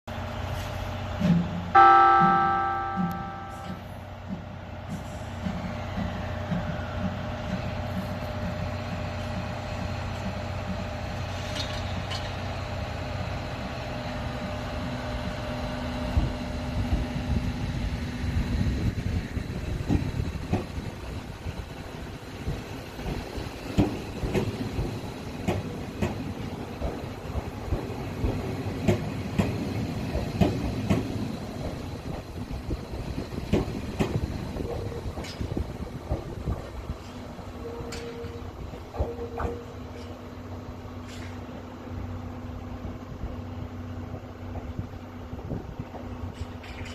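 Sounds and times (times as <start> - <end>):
train running rumble: 0.1 - 46.9
multi-pitch train horn tone: 1.8 - 3.9, 37.6 - 39.7
wheels clicking over rail joints: 4.2 - 12.7, 19.4 - 41.7, 44.5 - 46.9.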